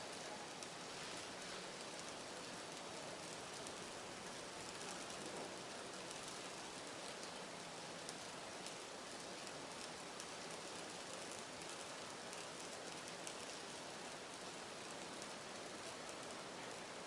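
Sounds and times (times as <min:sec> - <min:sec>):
burner flame hissing: 0:00.2 - 0:16.9
faint ticks: 0:08.0 - 0:13.7.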